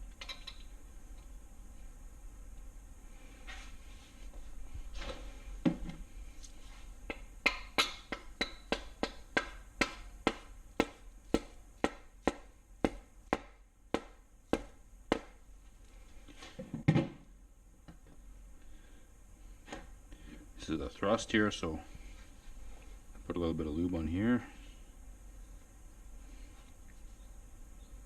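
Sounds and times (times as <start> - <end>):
mallet tapping metal: 7.1 - 15.3.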